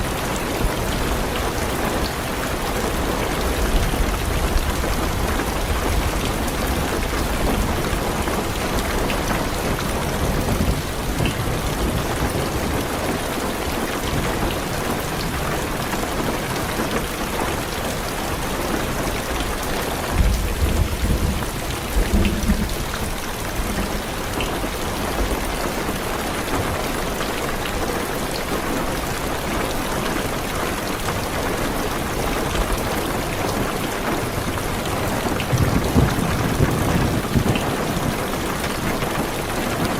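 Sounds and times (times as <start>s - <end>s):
heavy rain on a car roof: 0.0s - 39.9s
low thunder rumbling: 20.0s - 25.6s, 35.0s - 38.5s.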